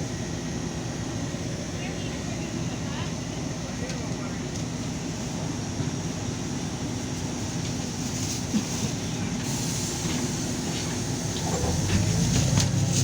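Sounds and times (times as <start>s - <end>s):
bus engine drone: 0.0s - 13.0s
road rumble: 7.8s - 13.0s.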